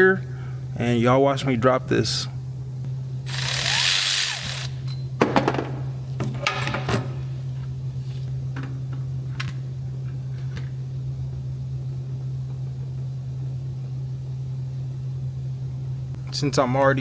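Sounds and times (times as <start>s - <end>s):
steady low hum: 0.0s - 17.0s
metal clatter: 5.2s - 7.4s.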